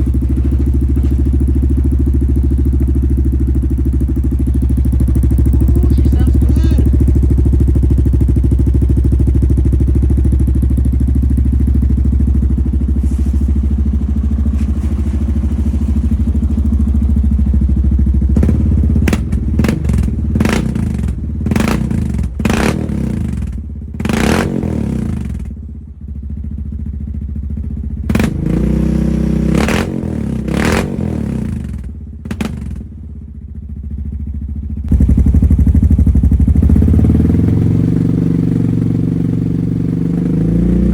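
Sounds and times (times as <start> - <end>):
atv engine sputtering: 0.0 - 25.6, 26.2 - 40.9
engine throttle blips: 3.8 - 8.8.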